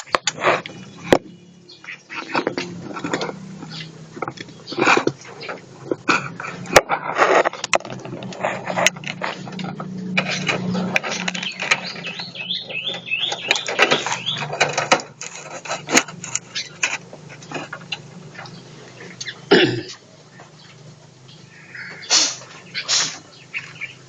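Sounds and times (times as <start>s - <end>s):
small birds chirping: 0.0s - 6.8s, 7.4s - 24.0s
clicks and rustles: 2.1s - 21.2s.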